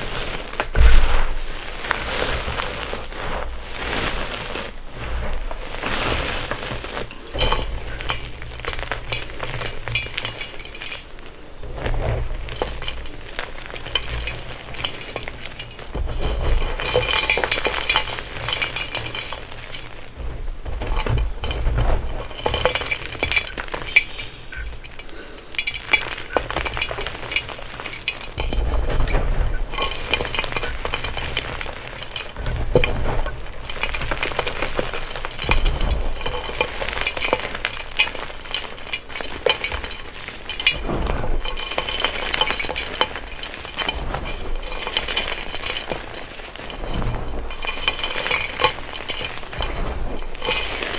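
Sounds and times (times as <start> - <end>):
chalk crushed by hand: 0.0 - 50.9
soft low thuds: 0.7 - 1.8.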